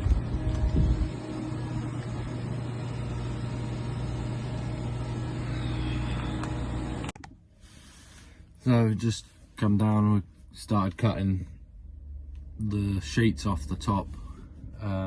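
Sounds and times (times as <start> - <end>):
low rumbling: 0.0 - 7.1
engine humming steadily: 0.0 - 7.2.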